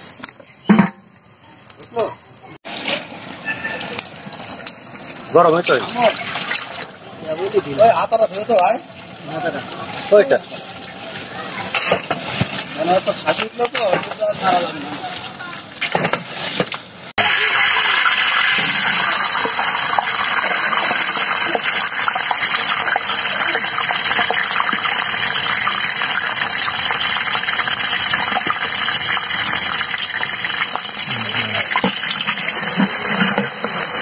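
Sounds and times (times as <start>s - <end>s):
onions sizzling in hot oil: 0.0s - 34.0s
wooden paddle scraping pot: 31.7s - 34.0s.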